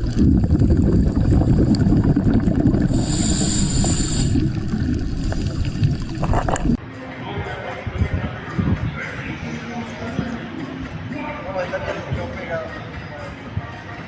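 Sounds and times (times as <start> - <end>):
wind and water rumble: 0.0 - 6.8
high thin whine: 1.2 - 6.8.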